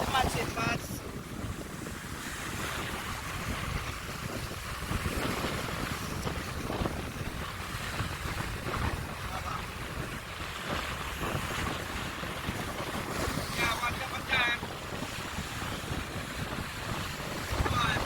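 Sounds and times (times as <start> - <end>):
rough sea surf: 0.0 - 18.0
wind buffeting microphone: 0.0 - 18.0.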